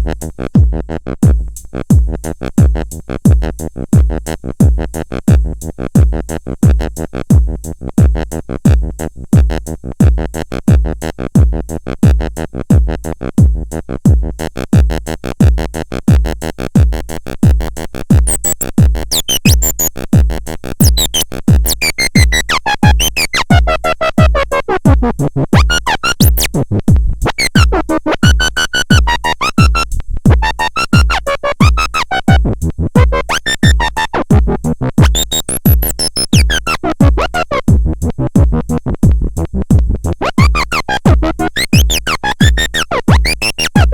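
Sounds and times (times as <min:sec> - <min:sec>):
heavy kick beat: 0:00.0 - 0:43.9
electronic music: 0:18.2 - 0:19.9, 0:20.8 - 0:24.6, 0:25.6 - 0:26.6, 0:27.2 - 0:34.2, 0:35.0 - 0:38.0, 0:40.0 - 0:43.9
synth tones sweeping in pitch: 0:18.3 - 0:19.9, 0:20.8 - 0:23.4, 0:25.6 - 0:26.5, 0:35.1 - 0:37.5, 0:40.3 - 0:43.9.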